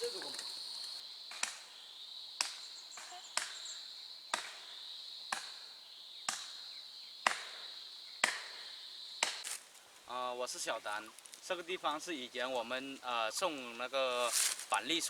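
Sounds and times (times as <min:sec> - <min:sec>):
high insect drone: 0:00.0 - 0:09.5
sharp chopping strikes: 0:04.3 - 0:04.6, 0:06.3 - 0:06.6, 0:08.2 - 0:08.6.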